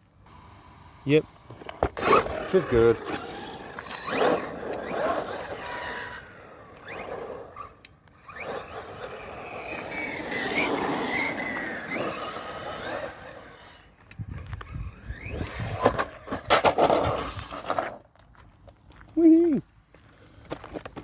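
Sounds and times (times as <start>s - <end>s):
electric motor whining: 0.3s - 16.3s
tyre noise on ground: 1.1s - 21.0s.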